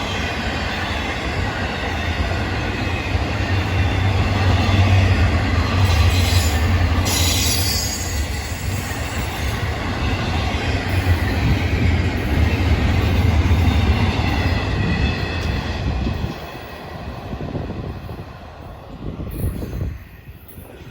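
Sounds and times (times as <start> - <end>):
train wheels rumbling on rails: 0.0 - 20.9
high wheel squeal: 5.8 - 9.6.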